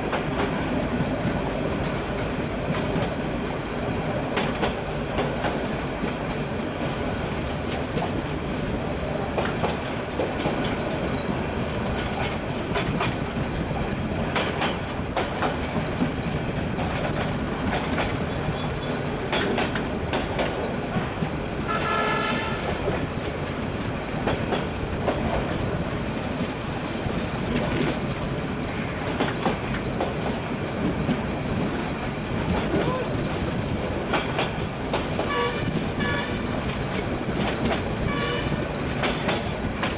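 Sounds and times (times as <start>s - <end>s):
train rumbling over track: 0.0s - 39.9s
wheels clicking on rail joints: 0.0s - 39.9s
train horn blast: 21.7s - 22.8s, 35.3s - 36.5s, 38.0s - 38.6s.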